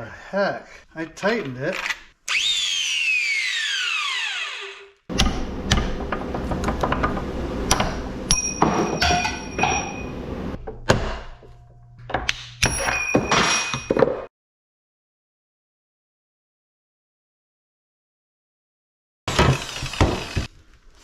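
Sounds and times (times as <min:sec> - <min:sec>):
power tool motor winding down: 0:02.3 - 0:08.3, 0:19.3 - 0:20.5
metal parts knocking and clanking: 0:05.1 - 0:10.2.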